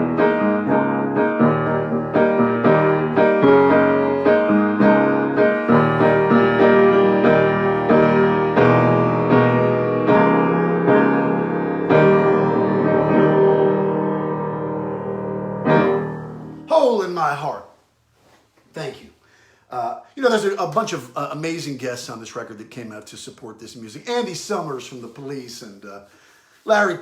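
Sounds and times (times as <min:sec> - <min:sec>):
solo piano playing chords: 0:00.0 - 0:16.7.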